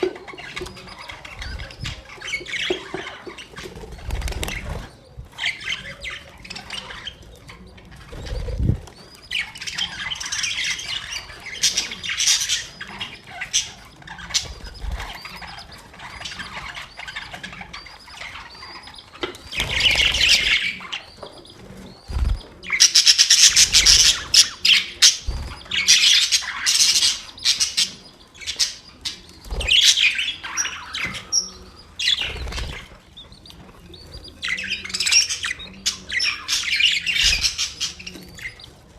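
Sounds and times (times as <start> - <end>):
budgerigars chirping: 0.0 - 38.9
budgerigars squawking: 9.2 - 21.4, 22.0 - 38.7.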